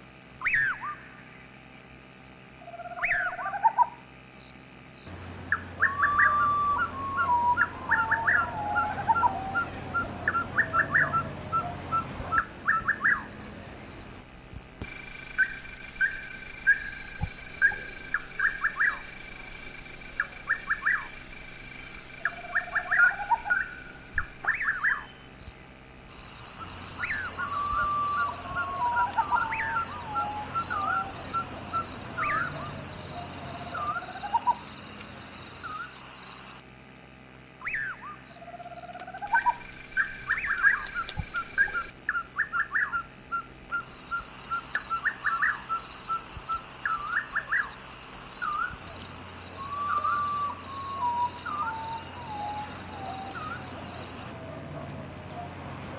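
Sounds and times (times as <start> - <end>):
high insect drone: 0.0 - 55.9
quick chirping calls: 5.1 - 13.6, 14.8 - 25.3, 26.6 - 34.7, 39.0 - 43.1.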